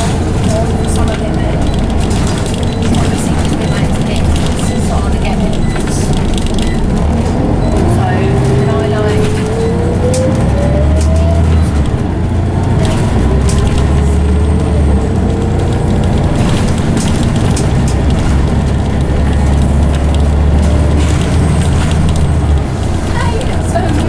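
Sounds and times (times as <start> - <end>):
bus gearbox whining: 0.0 - 24.0
clicks and rattles: 0.0 - 24.0
low engine drone: 0.0 - 24.0.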